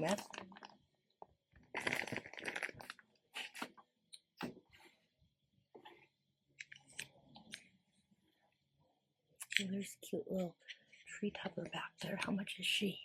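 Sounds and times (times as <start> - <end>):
crinkling rustle: 1.7 - 3.8.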